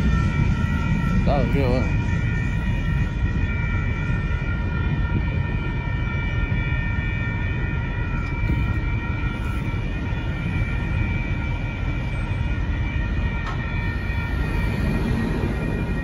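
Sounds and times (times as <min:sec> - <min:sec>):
train rumbling past: 0:00.0 - 0:05.3, 0:13.4 - 0:16.0
high-pitched ringing tones: 0:00.0 - 0:16.0.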